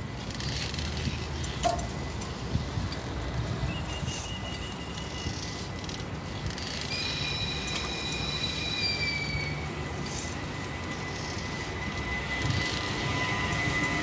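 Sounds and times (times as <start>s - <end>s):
train wheels squealing: 3.4s - 6.0s, 6.6s - 14.0s
train rumbling by: 6.8s - 14.0s.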